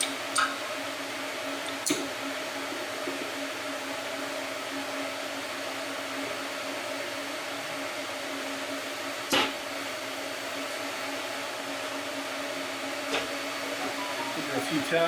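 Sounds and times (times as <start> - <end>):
machine hum: 9.7 - 15.0.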